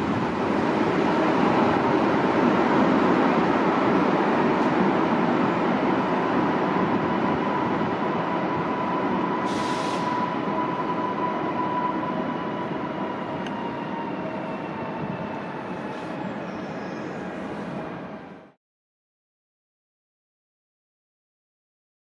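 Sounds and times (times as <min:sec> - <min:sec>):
train passing with whine: 0:00.0 - 0:18.6
brief hiss: 0:09.5 - 0:10.2.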